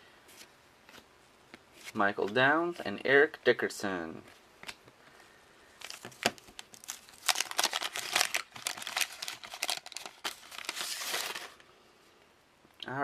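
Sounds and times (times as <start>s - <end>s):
wax paper wrapper crinkling and tearing: 5.7s - 11.7s.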